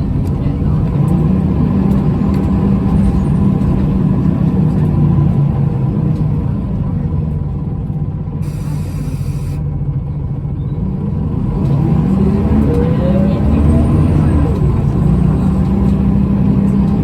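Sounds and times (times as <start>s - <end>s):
bus engine droning: 0.0s - 17.0s
hiss of air: 8.4s - 9.6s.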